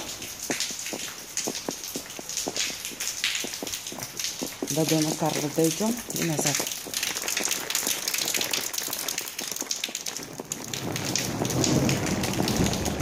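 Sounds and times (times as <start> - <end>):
heavy rain on stone pavement: 0.0 - 13.0
thunder rumbling: 10.2 - 13.0.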